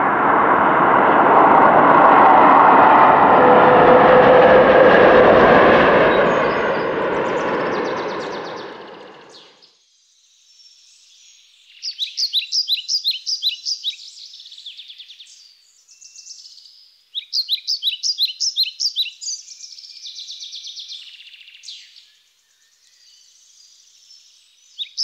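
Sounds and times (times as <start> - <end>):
steady high bird twittering: 6.1 - 25.0
rapid high bird chirps: 11.6 - 15.2, 16.2 - 22.0, 24.7 - 25.0.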